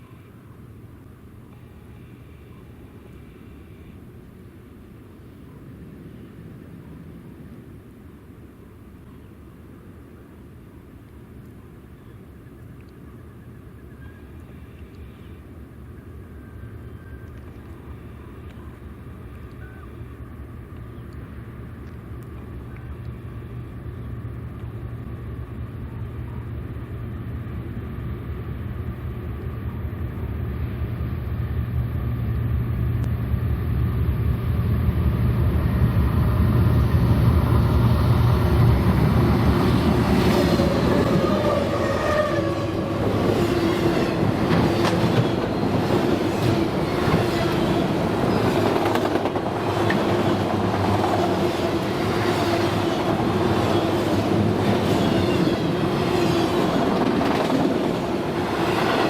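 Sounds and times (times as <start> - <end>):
diesel locomotive rumble: 15.4 - 59.0
train wheels clattering on rails: 38.5 - 59.0.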